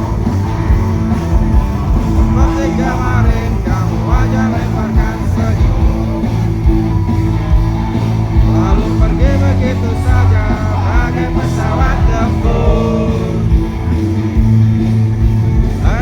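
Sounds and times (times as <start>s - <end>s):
live rock band playing: 0.0s - 16.0s
person singing: 8.5s - 13.6s.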